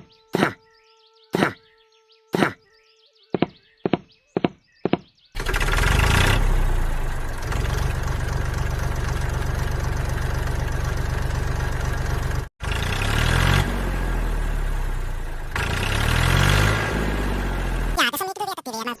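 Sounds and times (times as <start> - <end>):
small tractor engine running: 5.4 - 18.0.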